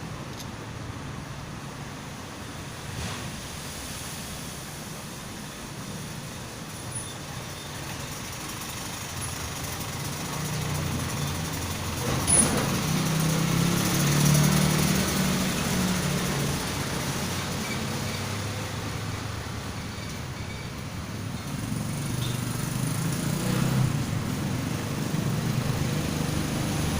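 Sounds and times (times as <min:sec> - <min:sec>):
vehicle engine passing: 0:09.8 - 0:19.7, 0:21.1 - 0:26.9.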